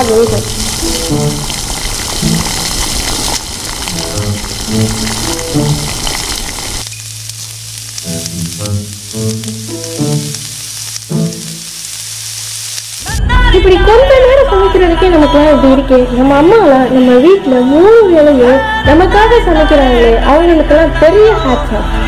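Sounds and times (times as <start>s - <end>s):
background music: 0.0s - 3.0s, 3.8s - 6.2s, 6.9s - 12.0s, 13.0s - 22.0s
food sizzling in a pan: 0.0s - 13.2s.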